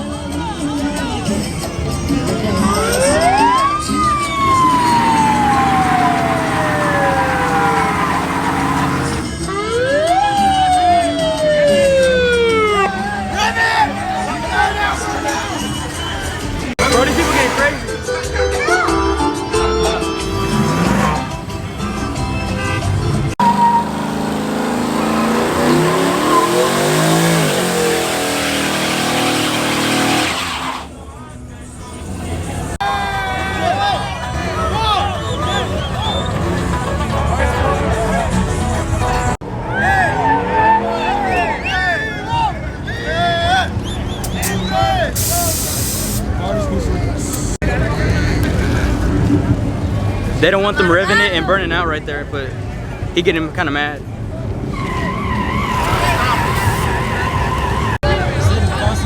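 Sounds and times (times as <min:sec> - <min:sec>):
low engine rumble: 0:01.1 - 0:09.4
truck engine revving: 0:01.4 - 0:09.5, 0:11.2 - 0:32.8, 0:33.5 - 0:39.4, 0:43.7 - 0:50.9, 0:54.0 - 0:59.0
siren wailing: 0:02.7 - 0:16.0
rough hiss: 0:45.2 - 0:46.3.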